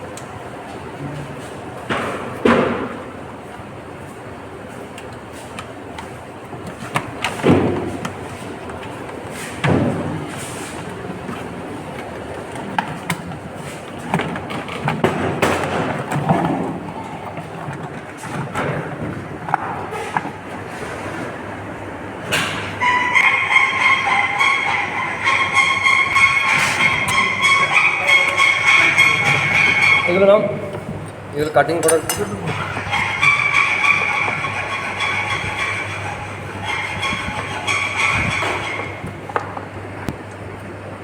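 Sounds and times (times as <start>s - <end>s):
objects thumping and knocking: 6.7s - 10.8s, 12.6s - 21.3s
objects scraping: 22.6s - 39.4s.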